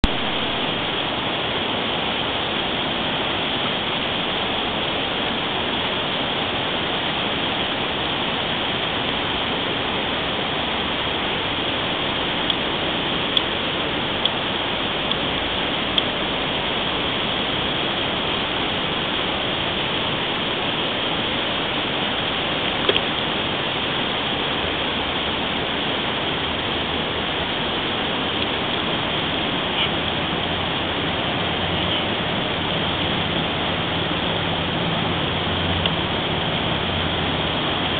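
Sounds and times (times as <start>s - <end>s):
river rapid rushing: 0.0s - 37.9s.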